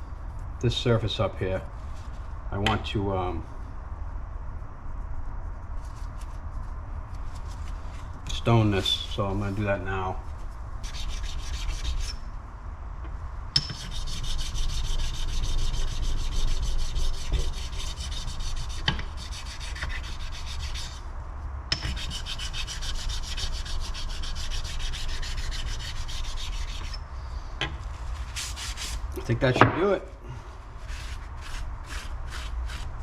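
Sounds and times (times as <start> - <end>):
sharpening stone scraping metal: 13.6 - 21.0, 21.7 - 27.1.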